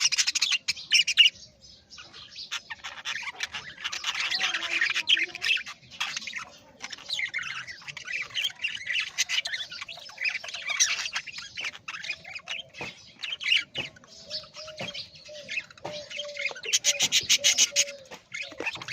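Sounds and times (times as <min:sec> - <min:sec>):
parrots squawking and chirping: 0:00.0 - 0:18.9.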